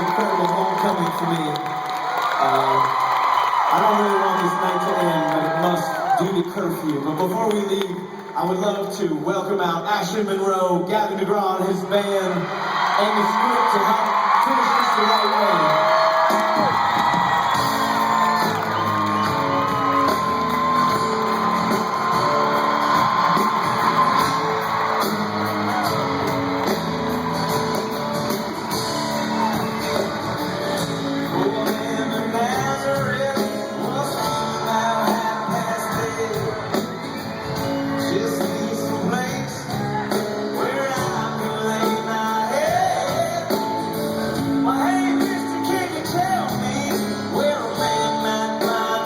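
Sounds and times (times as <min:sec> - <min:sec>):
audience shouting and whooping: 0:00.0 - 0:07.0, 0:12.2 - 0:38.7, 0:39.3 - 0:41.2
live rock band with singing: 0:15.1 - 0:49.0.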